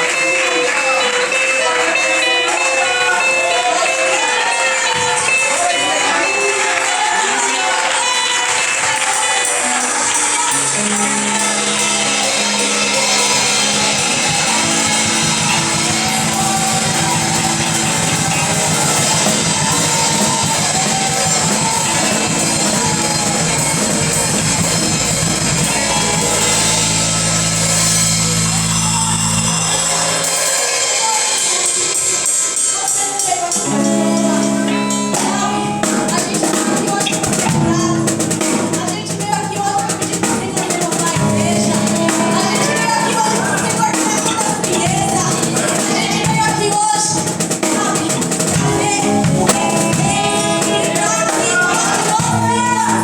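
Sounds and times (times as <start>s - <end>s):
worship band instrumental music: 0.0s - 53.0s
sustained low chords: 10.8s - 30.2s.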